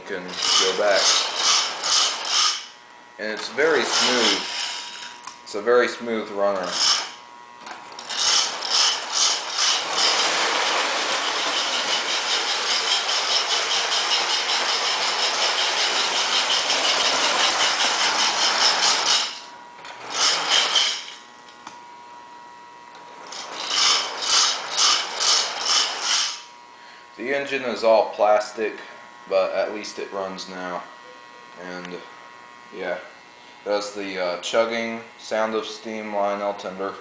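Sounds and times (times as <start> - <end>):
toy steam train chuffing: 0.3 - 2.6, 3.7 - 5.0, 6.6 - 7.1, 8.1 - 21.2, 23.2 - 26.4.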